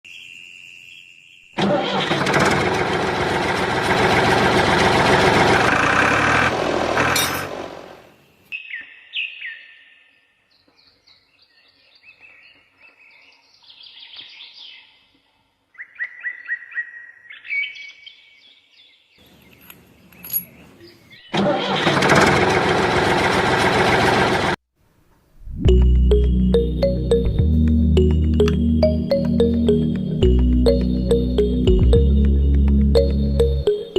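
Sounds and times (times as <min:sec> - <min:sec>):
small birds chirping: 0:08.5 - 0:21.3.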